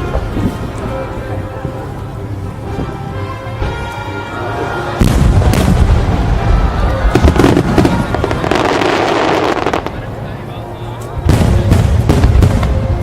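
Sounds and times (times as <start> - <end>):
fireworks booming and crackling: 0.0 - 2.0, 4.9 - 13.0
music: 0.0 - 13.0.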